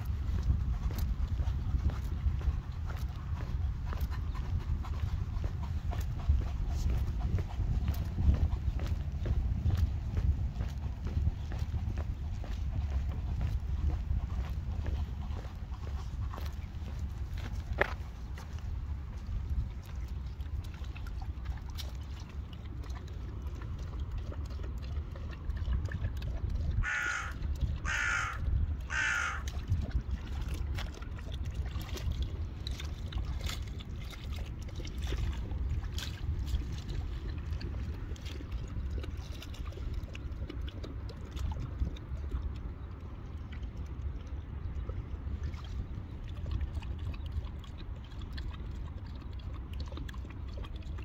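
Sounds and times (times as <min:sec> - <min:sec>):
steady low rumble: 0:00.0 - 0:51.0
harsh crow-like bird calls: 0:26.8 - 0:29.5.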